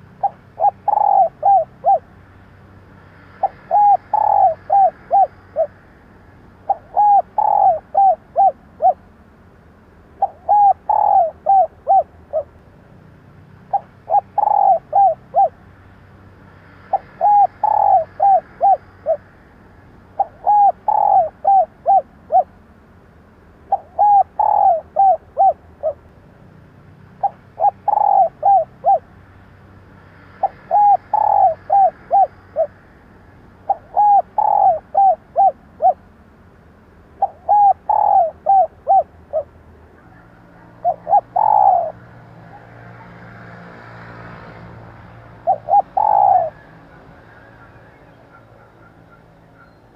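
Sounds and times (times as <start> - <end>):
dove cooing: 0.0 - 2.2, 3.3 - 5.8, 6.6 - 9.1, 10.1 - 12.6, 13.6 - 15.6, 16.8 - 19.3, 20.1 - 22.6, 23.7 - 26.1, 27.2 - 29.1, 30.4 - 32.8, 33.6 - 36.1, 37.2 - 43.4, 45.1 - 49.9.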